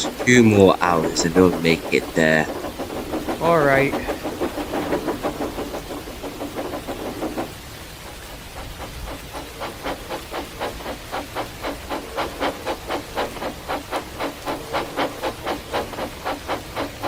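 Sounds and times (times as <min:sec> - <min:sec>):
steam locomotive chuffing: 0:00.0 - 0:17.0.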